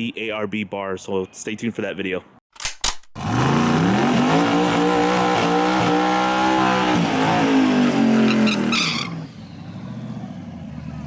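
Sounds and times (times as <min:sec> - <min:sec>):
car engine revving hard: 0:03.2 - 0:10.0
exhaust crackles: 0:03.2 - 0:11.0.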